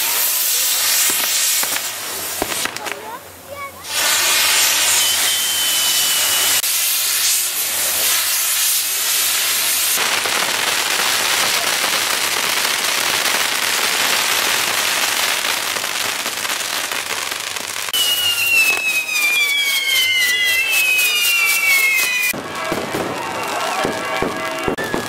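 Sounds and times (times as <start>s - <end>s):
fireworks hissing: 0.0s - 25.0s
falling whistle: 4.4s - 6.7s, 17.9s - 22.4s, 24.6s - 25.0s
whistling tone: 4.7s - 6.6s, 17.9s - 22.4s, 24.6s - 25.0s.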